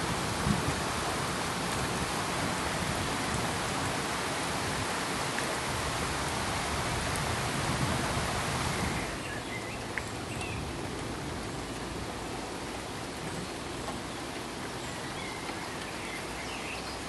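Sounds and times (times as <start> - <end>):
steady pink noise hiss: 0.0 - 17.0.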